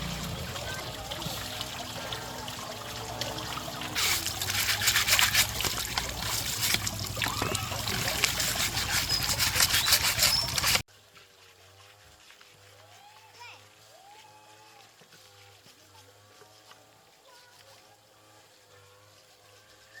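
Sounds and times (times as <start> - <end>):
water running and trickling: 0.0 - 11.4.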